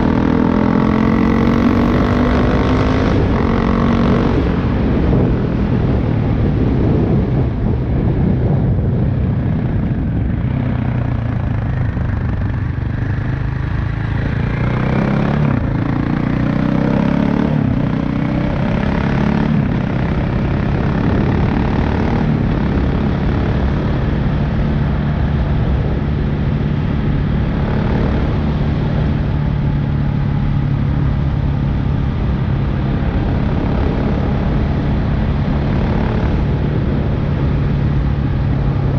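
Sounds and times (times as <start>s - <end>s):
motorcycle engine and exhaust running: 0.0s - 38.9s.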